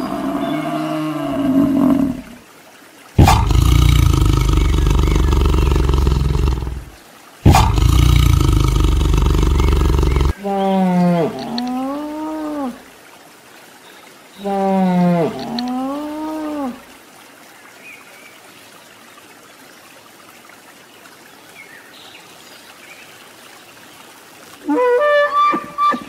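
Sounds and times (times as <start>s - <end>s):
water buffalo call: 0.0s - 2.2s, 3.2s - 6.8s, 7.5s - 8.3s, 24.6s - 26.0s
moose moaning call: 0.0s - 2.3s, 24.6s - 26.0s
tiger roaring: 0.0s - 2.3s, 3.2s - 10.4s.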